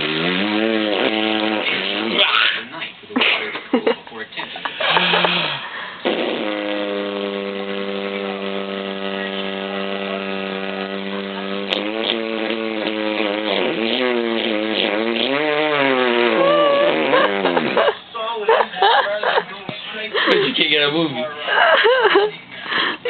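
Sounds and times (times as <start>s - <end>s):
long held vocal note: 16.4s - 17.0s.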